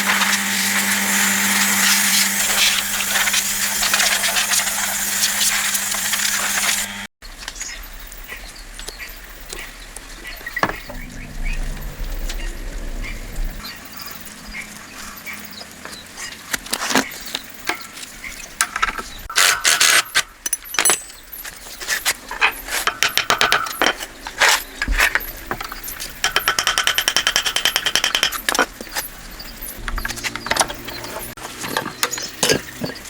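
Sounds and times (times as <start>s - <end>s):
metal tools clinking: 19.3s - 24.1s.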